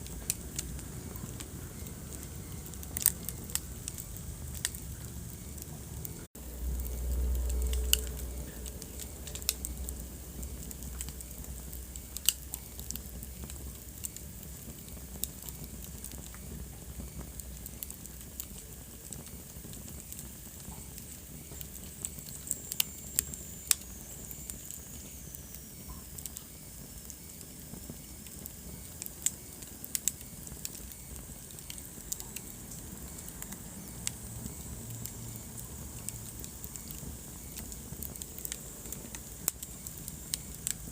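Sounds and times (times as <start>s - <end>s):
wood fire crackling: 0.0s - 40.9s
faint high whistle: 20.7s - 32.4s.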